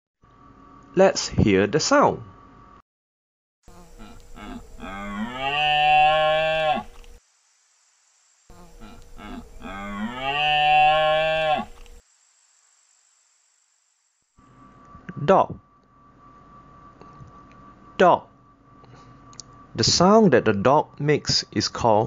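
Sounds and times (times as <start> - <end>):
deer bellowing: 3.7 - 6.9, 8.6 - 11.8.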